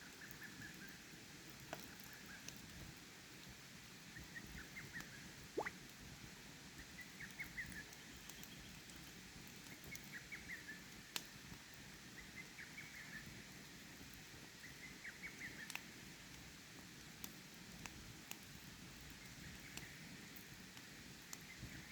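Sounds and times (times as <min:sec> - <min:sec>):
flowing water hiss: 0:05.5 - 0:05.9
campfire crackling: 0:07.2 - 0:21.9.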